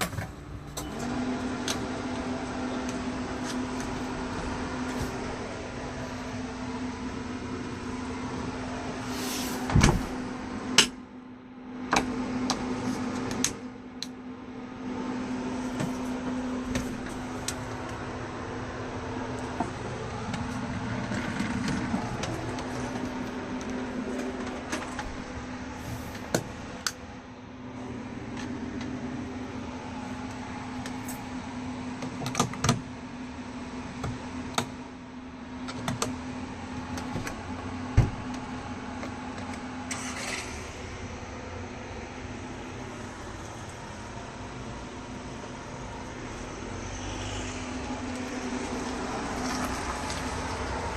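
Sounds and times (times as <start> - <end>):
steady low hum: 0.0 - 50.9
heavy thump: 9.6 - 10.2, 38.0 - 38.3.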